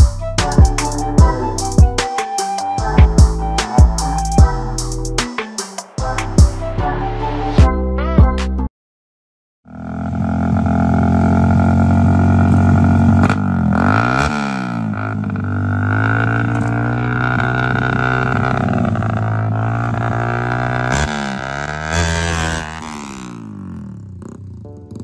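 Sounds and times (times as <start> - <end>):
motorcycle engine droning: 9.7 - 25.0.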